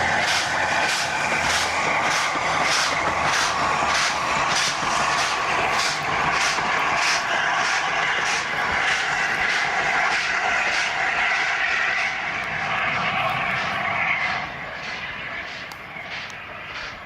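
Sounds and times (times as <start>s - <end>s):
steam hissing: 0.0s - 17.0s
steam locomotive exhaust beats: 0.0s - 17.0s.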